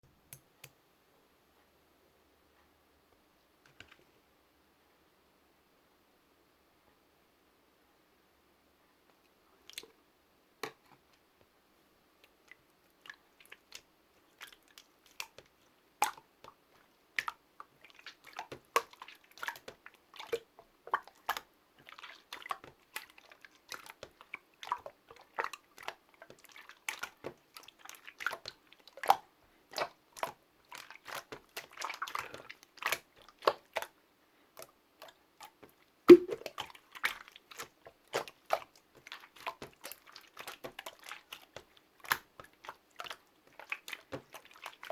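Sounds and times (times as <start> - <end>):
slime air-bubble pops: 36.1 - 36.6.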